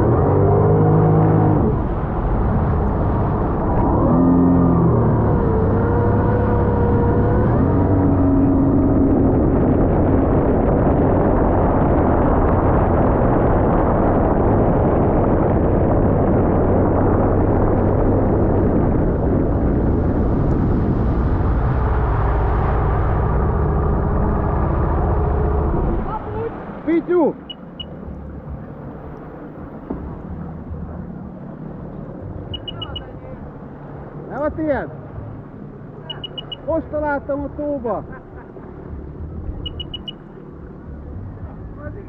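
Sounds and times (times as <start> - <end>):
wind noise: 0.0 - 26.8
personal watercraft engine: 0.0 - 42.0.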